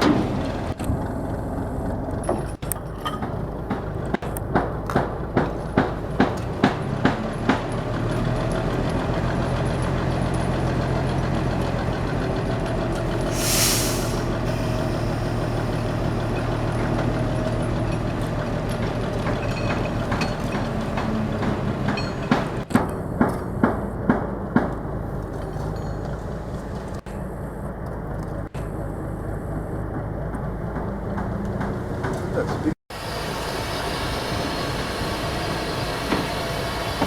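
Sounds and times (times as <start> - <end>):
engine running: 0.0 - 37.0
air hiss: 13.2 - 16.0.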